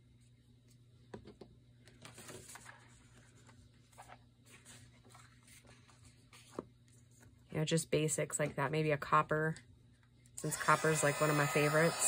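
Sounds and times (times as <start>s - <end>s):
low steady hum: 0.0s - 12.0s
paper rustling: 1.9s - 7.3s.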